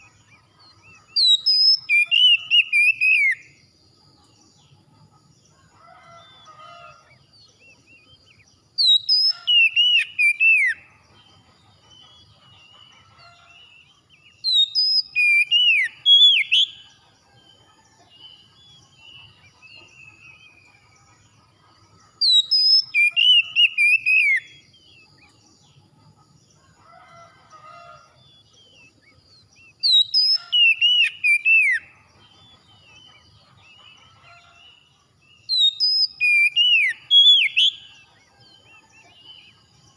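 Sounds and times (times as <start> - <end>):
quieter bird chirps: 0.0 - 39.9
songbird whistling phrases: 1.1 - 3.4, 8.8 - 10.8, 14.5 - 16.8, 22.2 - 24.9, 29.6 - 31.9, 35.5 - 38.0.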